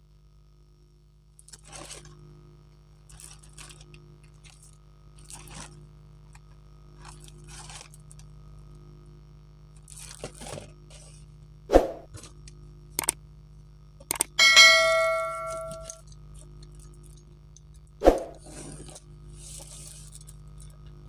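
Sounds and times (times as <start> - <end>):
small clicks: 12.4 - 13.2, 14.0 - 14.4
bright ringing ding: 14.4 - 16.0.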